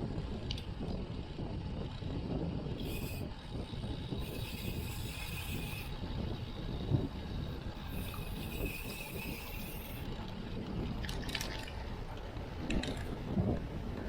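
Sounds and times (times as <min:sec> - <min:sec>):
bicycle freewheel ticking: 0:00.0 - 0:11.1
bike tyre rumble: 0:00.0 - 0:14.0
wind buffeting microphone: 0:00.0 - 0:14.0.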